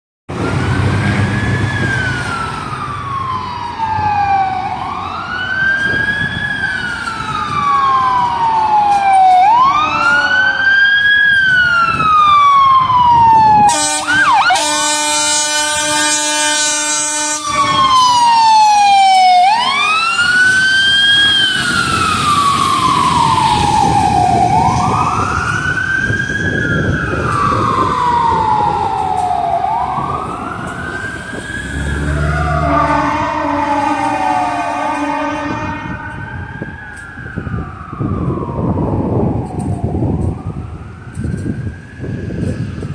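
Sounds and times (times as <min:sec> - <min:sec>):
fire engine siren wailing: 0:00.3 - 0:42.9
truck engine rumbling: 0:00.3 - 0:42.9
blaring horn: 0:09.6 - 0:10.9, 0:13.6 - 0:18.4, 0:32.0 - 0:36.3.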